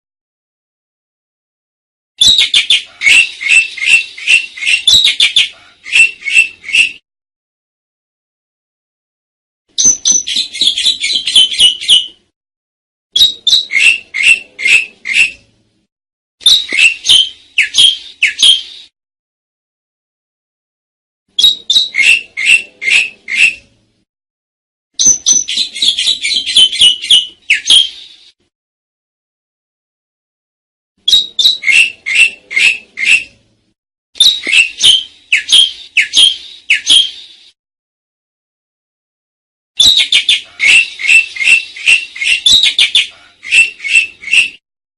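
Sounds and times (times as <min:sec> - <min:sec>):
starling calling loudly: 0:02.2 - 0:07.0, 0:13.2 - 0:15.3, 0:21.4 - 0:23.6, 0:31.1 - 0:33.2, 0:34.2 - 0:37.2, 0:39.8 - 0:44.6.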